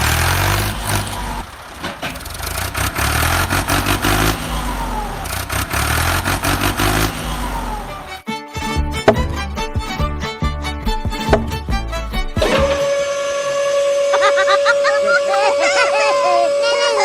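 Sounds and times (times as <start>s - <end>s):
vehicle engine revving: 0.0s - 8.3s.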